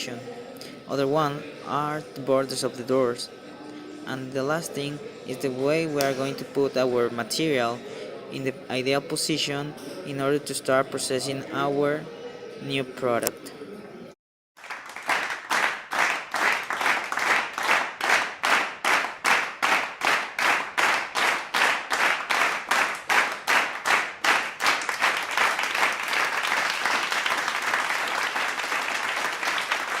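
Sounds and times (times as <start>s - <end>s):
continuous applause: 14.6s - 30.0s
people clapping in unison: 14.6s - 30.0s.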